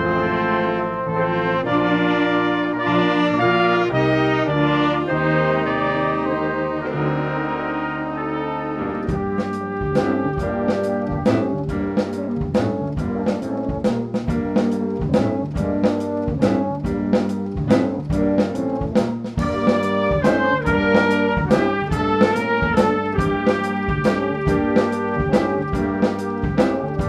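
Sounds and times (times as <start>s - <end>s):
trumpets and trombones: 0.0s - 27.0s
drum kit beat: 8.9s - 27.0s.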